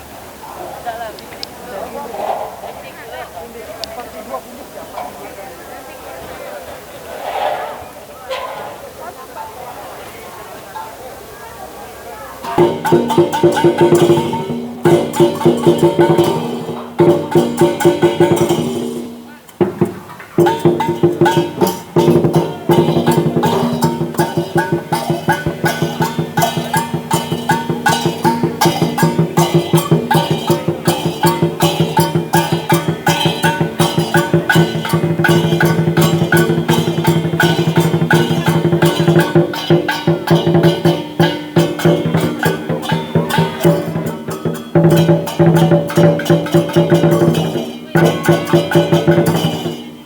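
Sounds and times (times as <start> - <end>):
percussion band fast drum beat: 12.4 - 50.0
ringing metal percussion: 12.4 - 50.0.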